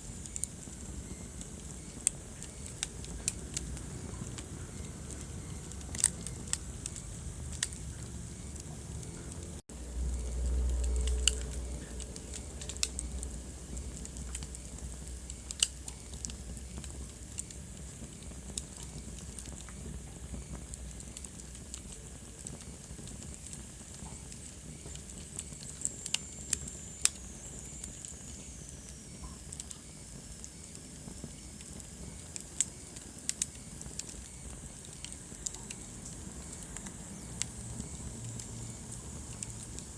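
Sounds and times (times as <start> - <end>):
wood fire crackling: 0.0 - 39.9
low rumble: 3.1 - 15.5.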